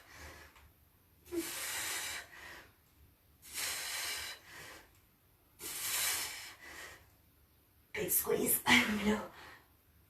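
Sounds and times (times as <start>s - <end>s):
woman breathing hard: 0.0s - 0.7s, 1.3s - 2.8s, 3.4s - 5.0s, 5.6s - 7.2s.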